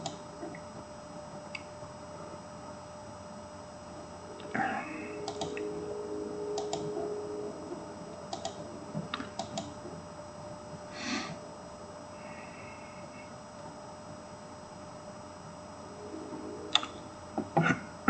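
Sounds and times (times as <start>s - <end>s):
computer keys clicking: 0.0s - 0.2s, 5.2s - 5.6s, 6.6s - 6.9s, 8.3s - 9.7s
faint steady hum: 0.0s - 18.0s.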